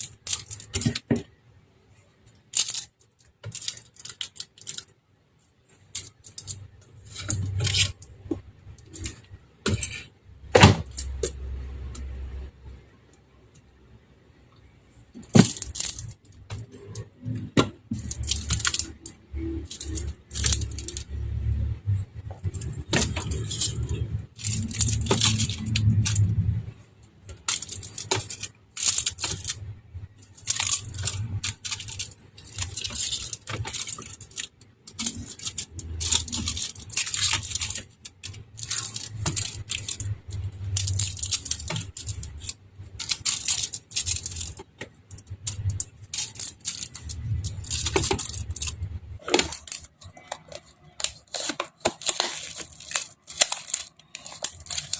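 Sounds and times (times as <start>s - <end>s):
containers clinking and rattling: 5.7s - 11.9s, 15.2s - 54.9s
bags rustling: 22.4s - 26.7s, 27.3s - 54.9s.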